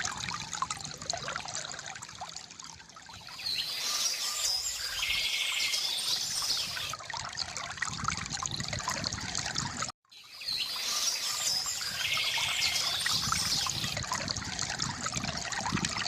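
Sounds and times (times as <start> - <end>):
river water gurgling: 0.0 - 16.0
small birds chirping: 3.2 - 6.9, 10.2 - 14.0.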